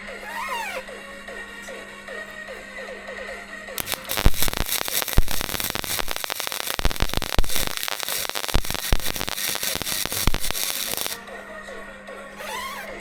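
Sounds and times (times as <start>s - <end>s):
welding arc crackling and popping: 3.8s - 11.2s.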